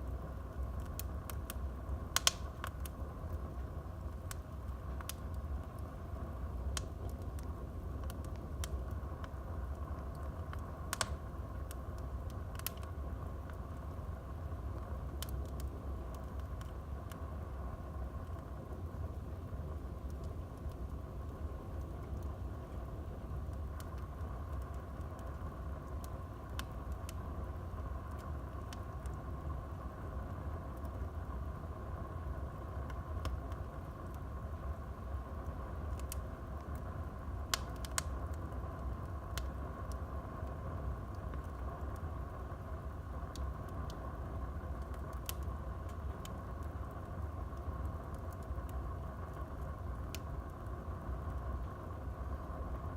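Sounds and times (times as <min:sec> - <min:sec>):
fire crackling and popping: 0:00.0 - 0:52.9
low fire rumble: 0:00.0 - 0:52.9.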